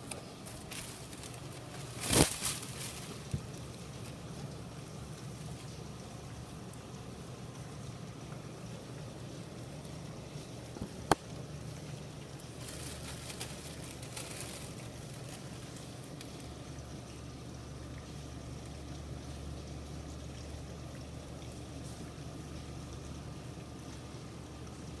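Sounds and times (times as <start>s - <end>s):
crackling: 0.0s - 4.2s, 12.4s - 16.5s.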